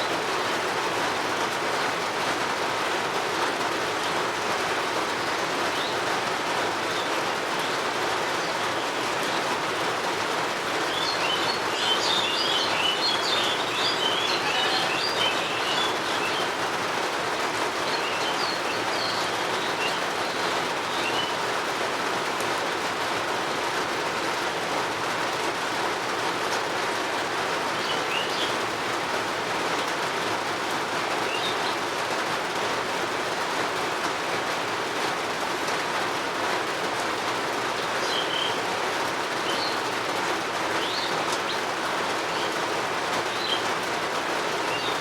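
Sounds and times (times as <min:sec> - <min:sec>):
steady rain falling: 0:00.0 - 0:45.0
small birds chirping: 0:06.8 - 0:21.7, 0:27.7 - 0:28.8, 0:31.0 - 0:32.0, 0:37.7 - 0:45.0.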